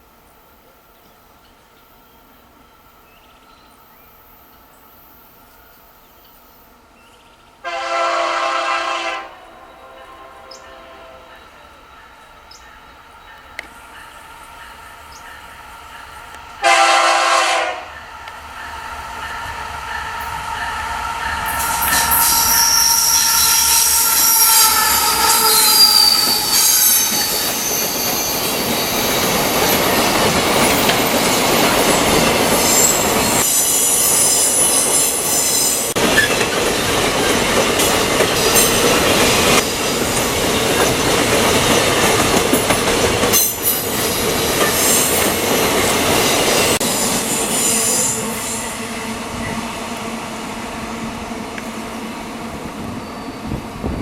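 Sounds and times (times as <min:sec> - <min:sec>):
freight train wheels rumbling: 0:07.7 - 0:54.0
wheels squealing on track: 0:21.4 - 0:30.1.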